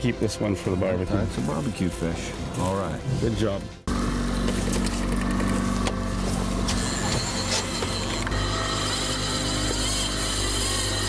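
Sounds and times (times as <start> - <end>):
boat engine running: 3.9 - 8.6.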